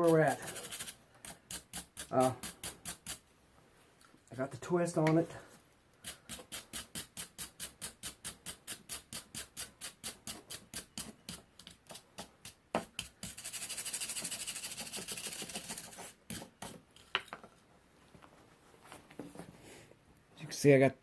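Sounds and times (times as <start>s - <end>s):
wire brush scrubbing steel: 0.0s - 3.2s.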